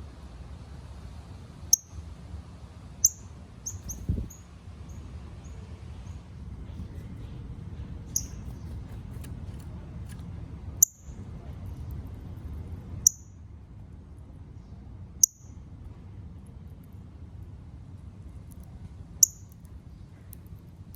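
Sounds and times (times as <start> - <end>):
low background rumble: 0.0 - 20.9
bird metallic chip calls: 3.0 - 4.4, 8.1 - 9.3.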